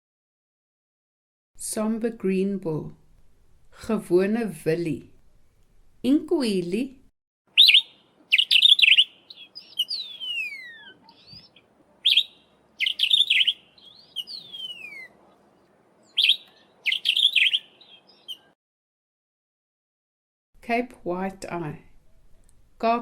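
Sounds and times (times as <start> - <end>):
bird whistles sliding downward: 7.6 - 15.1, 16.2 - 17.7
bird chattering calls: 7.6 - 15.4, 16.1 - 18.5.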